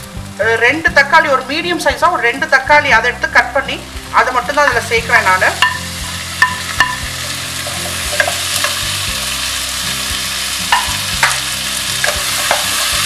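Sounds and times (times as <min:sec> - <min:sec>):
vegetables sizzling in hot oil: 0:00.0 - 0:13.0
wooden spatula knocking pan: 0:04.7 - 0:07.1, 0:07.8 - 0:08.8, 0:10.7 - 0:11.4.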